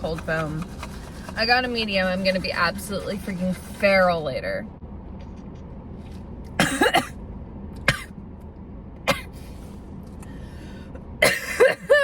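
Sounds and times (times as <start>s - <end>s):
woman coughing: 6.6s - 7.2s, 7.9s - 8.1s, 9.1s - 9.3s, 11.2s - 12.0s.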